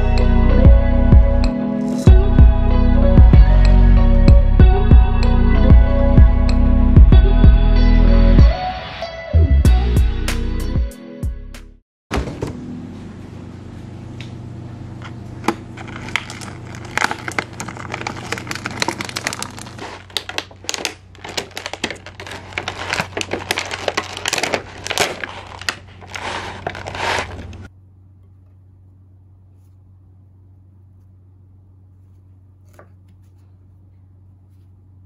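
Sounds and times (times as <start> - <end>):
plastic packaging crinkling: 15.4 - 27.7
faint low hum: 27.6 - 35.0.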